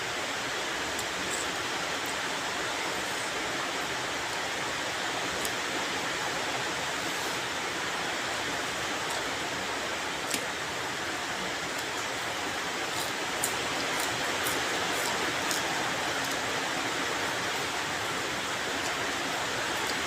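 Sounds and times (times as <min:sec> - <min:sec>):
steady rain falling: 0:00.0 - 0:20.0
sharp ticks of raindrops: 0:10.1 - 0:10.7.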